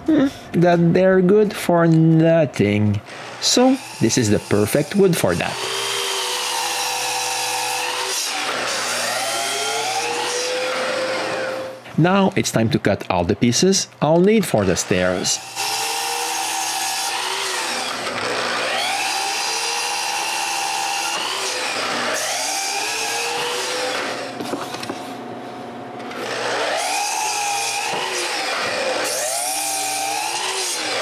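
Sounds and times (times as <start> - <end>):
power saw cutting wood: 3.1 - 11.8, 14.5 - 24.6, 26.0 - 31.0.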